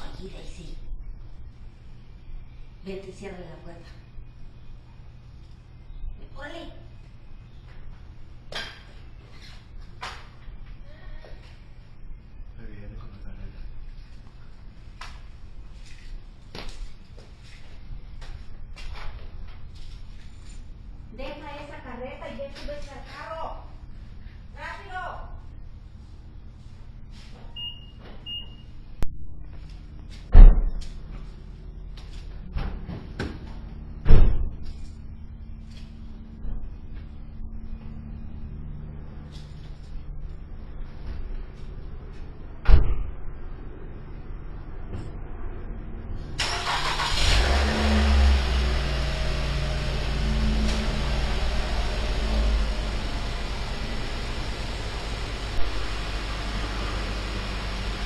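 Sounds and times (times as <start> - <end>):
car engine idling: 46.4 - 58.0.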